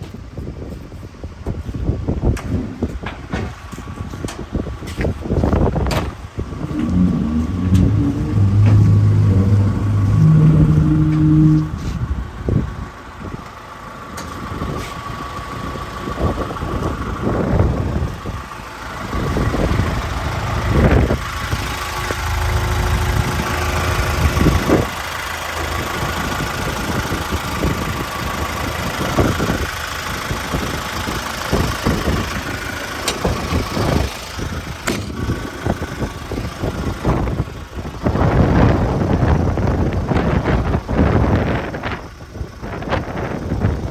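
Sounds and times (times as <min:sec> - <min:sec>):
excavator diesel engine running: 0:04.0 - 0:43.9
steady high whine: 0:06.6 - 0:12.8.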